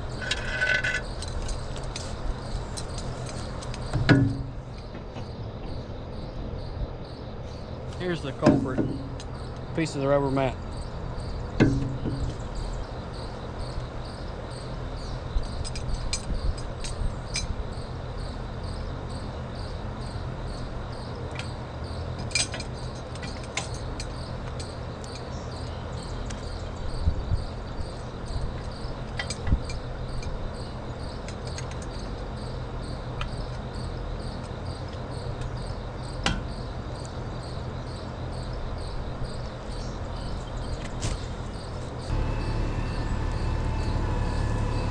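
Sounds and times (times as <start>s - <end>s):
crickets chirping: 0.0s - 44.9s
metal clicks and knocks: 11.6s - 12.5s
low even hum: 40.0s - 44.9s.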